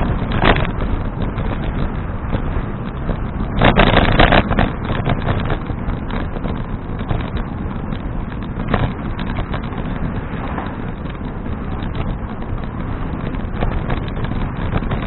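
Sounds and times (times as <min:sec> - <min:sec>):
low road rumble: 0:00.0 - 0:15.0
rattling and crackling: 0:00.0 - 0:15.0
wind rushing over microphone: 0:00.0 - 0:15.0.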